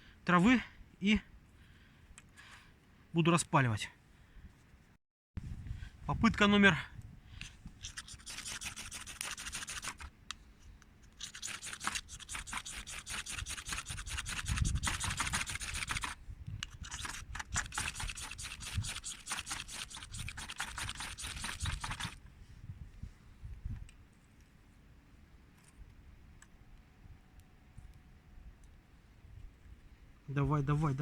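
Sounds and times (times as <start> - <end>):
ferro rod scraped with striker: 7.4 - 10.1, 11.1 - 22.2.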